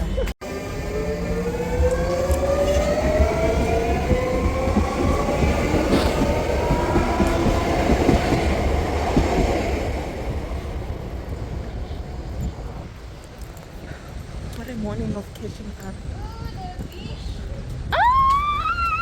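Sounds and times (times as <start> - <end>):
train rumble: 0.0 - 19.0
electric train motor whine: 0.4 - 8.8
train wheel clatter: 0.7 - 17.8.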